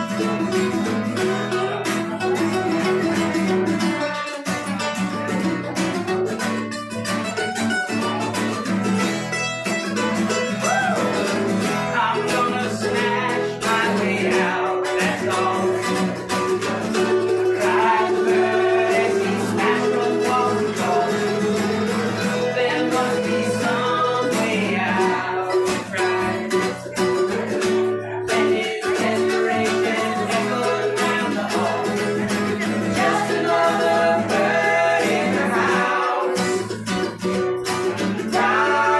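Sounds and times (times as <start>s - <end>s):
plucked acoustic guitar: 0.0s - 38.9s
sliding melody line: 8.9s - 38.9s.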